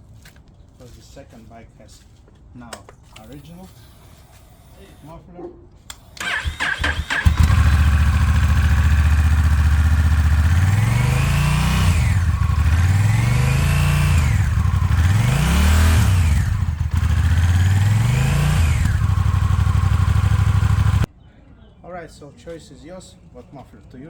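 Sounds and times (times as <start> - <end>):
motorcycle engine idling and revving: 6.2 - 21.1.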